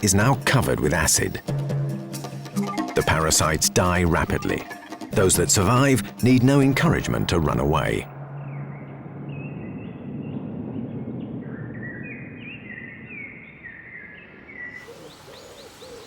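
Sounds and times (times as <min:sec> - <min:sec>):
outdoor background noise: 0:06.6 - 0:16.0
small birds chirping: 0:08.4 - 0:16.0.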